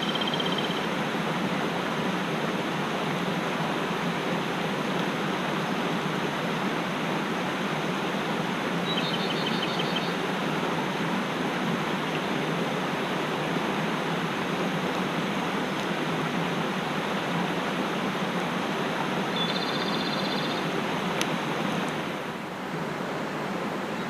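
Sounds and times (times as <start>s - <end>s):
stream rushing over rocks: 0.0s - 24.0s
small bird trilling: 19.4s - 20.6s.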